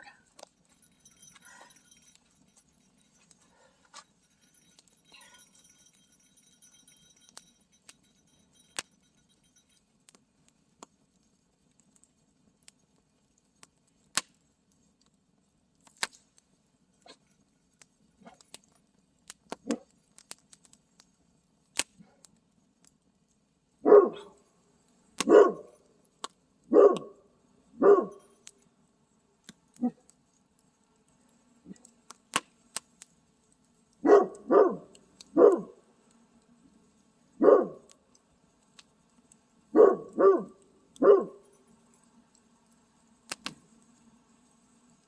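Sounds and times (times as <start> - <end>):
campfire crackling and popping: 0.1 - 23.8, 24.4 - 27.2, 28.2 - 45.0
dog barking: 23.8 - 24.4, 25.2 - 25.8, 26.7 - 27.2, 27.8 - 28.2, 34.0 - 35.8, 37.4 - 37.9, 39.7 - 41.5.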